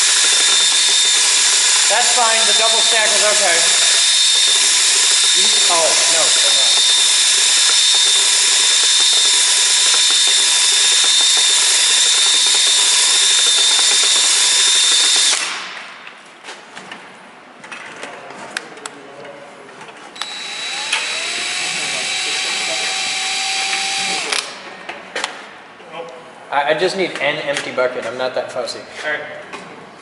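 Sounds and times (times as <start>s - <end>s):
power tool whining: 0.0s - 15.6s, 20.2s - 24.6s.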